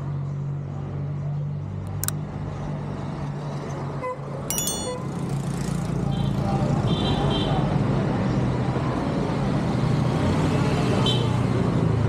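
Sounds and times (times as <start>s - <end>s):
street traffic: 0.0s - 12.0s
bell-like notification chime: 4.5s - 5.2s.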